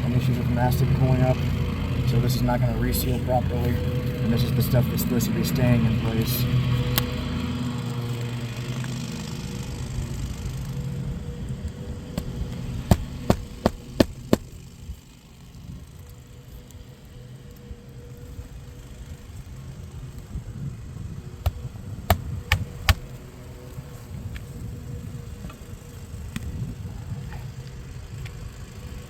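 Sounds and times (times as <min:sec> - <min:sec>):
steady low hum: 0:00.0 - 0:28.6
nails hammered into shingle: 0:12.9 - 0:14.5, 0:21.4 - 0:23.1.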